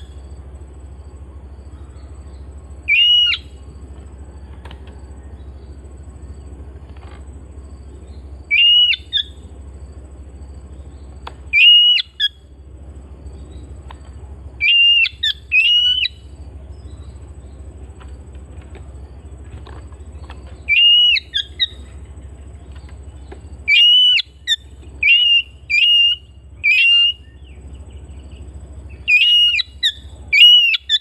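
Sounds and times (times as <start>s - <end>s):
steady low hum: 0.0s - 31.0s
bird whistled call: 1.7s - 3.6s, 8.5s - 9.4s, 11.5s - 12.4s, 14.6s - 17.1s, 20.6s - 22.1s, 23.6s - 31.0s.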